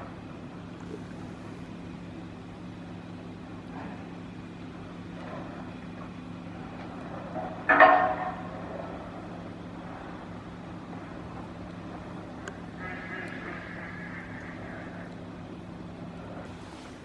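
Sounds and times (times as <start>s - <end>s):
vessel engine drone: 0.0s - 17.0s
loud pitched horn blast: 12.8s - 14.4s.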